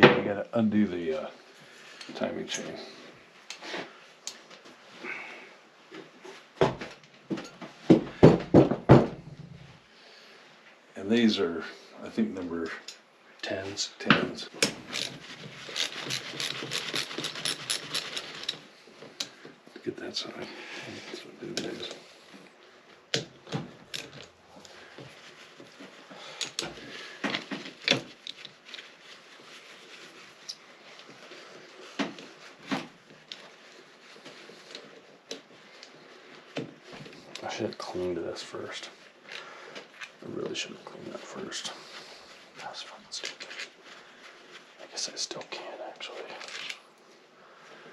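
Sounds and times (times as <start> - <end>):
metallic clicks of hand tools: 15.7 - 18.6.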